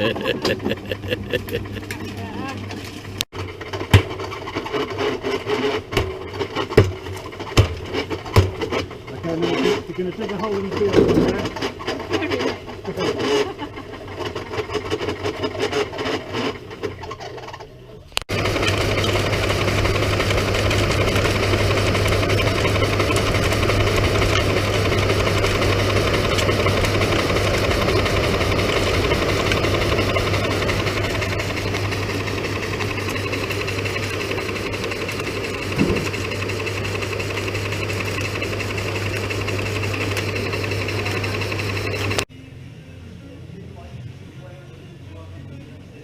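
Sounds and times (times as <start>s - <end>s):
engine running with low hum: 0.0s - 3.3s, 18.2s - 46.0s.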